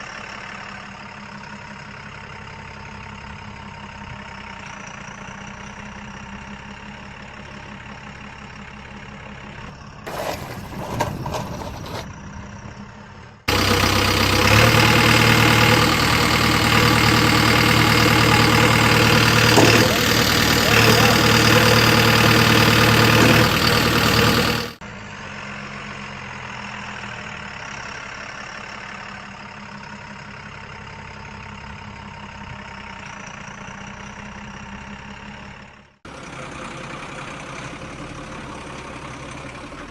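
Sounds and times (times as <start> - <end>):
vehicle engine idling: 0.0 - 39.9
loud noisy engine stretch: 9.7 - 29.5.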